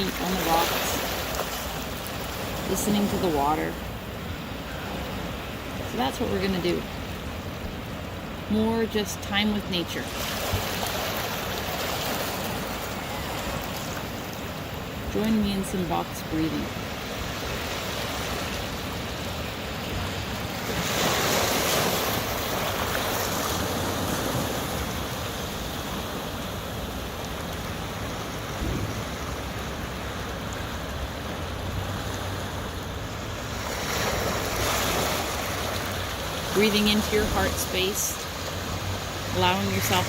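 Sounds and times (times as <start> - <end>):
waves washing against rocks: 0.0 - 8.9, 9.5 - 16.0, 16.6 - 40.0
wind buffeting microphone: 28.6 - 29.7.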